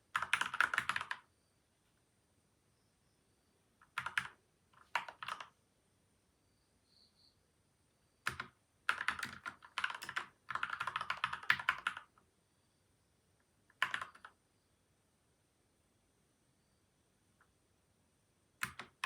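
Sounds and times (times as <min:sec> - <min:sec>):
mechanical keyboard typing: 0:00.1 - 0:01.2, 0:03.8 - 0:05.5, 0:08.3 - 0:12.1, 0:13.7 - 0:14.4, 0:18.6 - 0:19.0.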